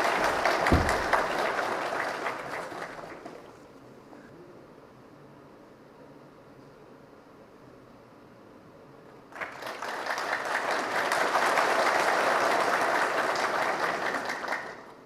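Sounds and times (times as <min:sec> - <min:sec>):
audience applauding: 0:00.0 - 0:03.6, 0:09.3 - 0:15.0.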